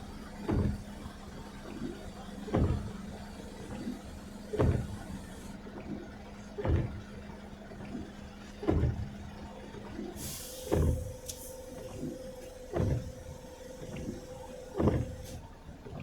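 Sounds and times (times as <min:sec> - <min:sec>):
vehicle cabin noise: 0:00.0 - 0:05.9, 0:07.8 - 0:16.0
windshield wipers sweeping: 0:00.4 - 0:05.6, 0:06.6 - 0:07.0, 0:08.7 - 0:09.0, 0:10.2 - 0:16.0
wiper thump: 0:04.6 - 0:05.0, 0:10.7 - 0:11.4.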